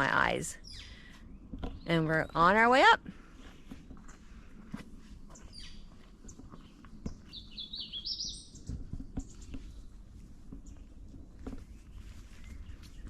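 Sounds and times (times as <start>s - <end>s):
songbird singing: 0.0s - 4.2s, 5.3s - 13.0s
footsteps on trail: 0.7s - 13.0s.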